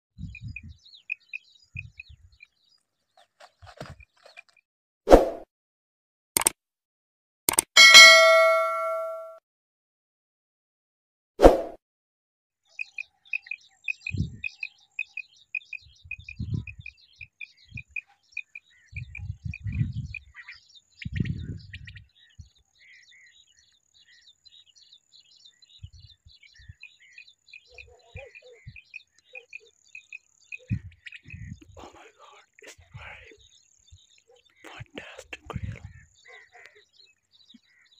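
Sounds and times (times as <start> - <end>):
small birds chirping: 0.2 - 4.6, 12.6 - 37.9.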